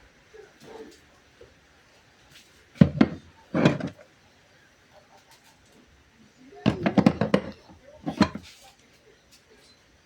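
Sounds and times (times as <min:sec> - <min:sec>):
clattering knocks of handled objects: 0:02.8 - 0:04.0, 0:06.7 - 0:08.5.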